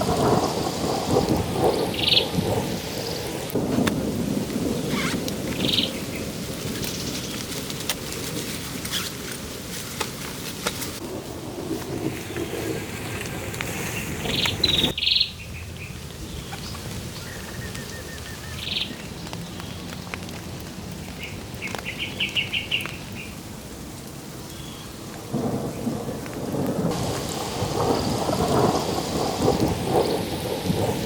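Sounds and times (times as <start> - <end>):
rolling thunder: 0.0 - 7.4, 11.0 - 15.2, 25.2 - 31.0
steady rain: 0.0 - 31.0
high bird chirps: 4.9 - 6.2, 14.2 - 19.1.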